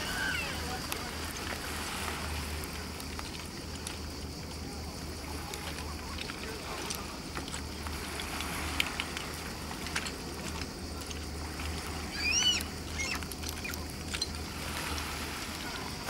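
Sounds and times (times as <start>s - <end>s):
faint clicks: 5.4s - 15.6s.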